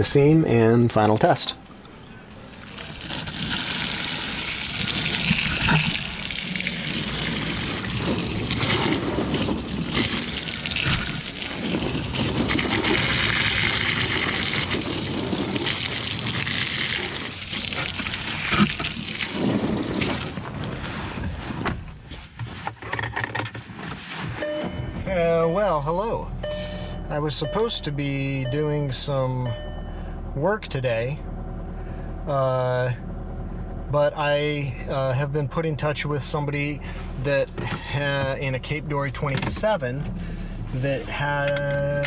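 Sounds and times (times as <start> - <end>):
water splashing on boat deck: 1.7 - 21.6.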